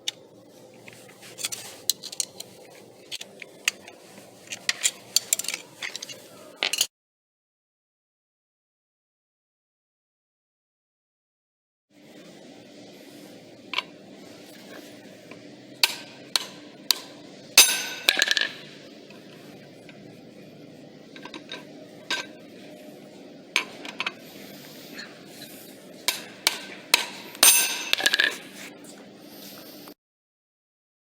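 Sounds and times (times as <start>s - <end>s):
metallic clicks and clinks: 1.3s - 6.9s, 26.1s - 28.6s
ringing metal strikes: 15.8s - 18.8s, 26.1s - 28.4s.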